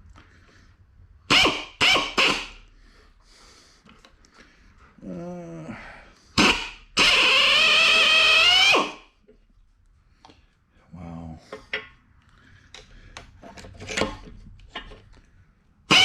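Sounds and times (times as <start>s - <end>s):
power drill drilling: 1.3s - 2.5s, 6.4s - 9.0s.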